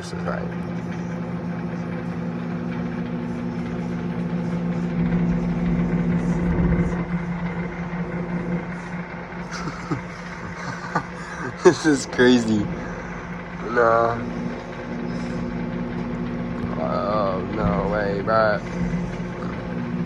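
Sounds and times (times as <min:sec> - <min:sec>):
microwave oven humming: 0:00.0 - 0:20.0
low rumble: 0:00.7 - 0:11.2.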